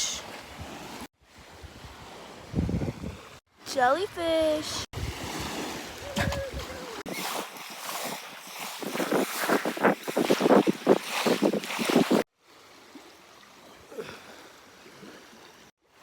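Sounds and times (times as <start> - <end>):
wind buffeting microphone: 1.4 - 3.4, 4.6 - 7.3, 8.8 - 12.2
surf breaking on beach: 4.6 - 12.2.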